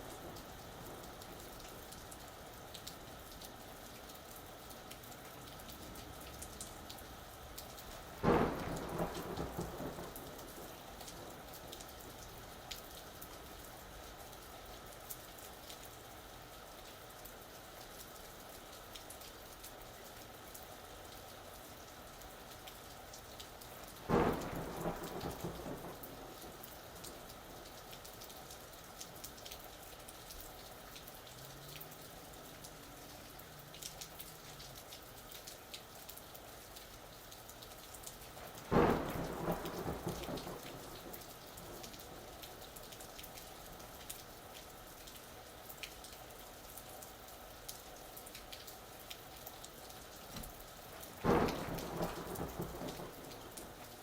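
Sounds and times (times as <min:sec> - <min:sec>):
steady rain falling: 0:00.0 - 0:54.0
thunder claps: 0:08.2 - 0:11.4, 0:24.1 - 0:27.1, 0:38.5 - 0:42.3, 0:51.2 - 0:53.8.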